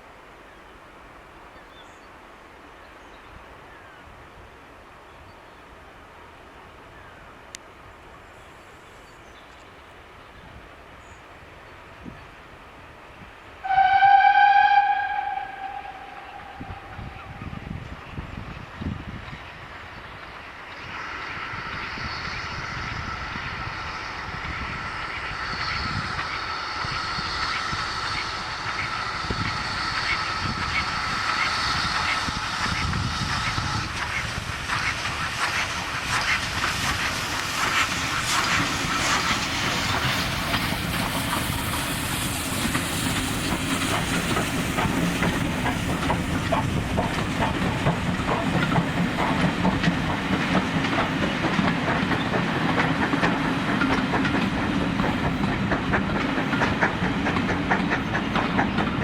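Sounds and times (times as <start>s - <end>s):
steam train passing: 0.0s - 59.0s
steady high tone: 13.7s - 17.8s
steam hiss: 19.6s - 59.0s
wheels clicking over rail joints: 30.5s - 59.0s.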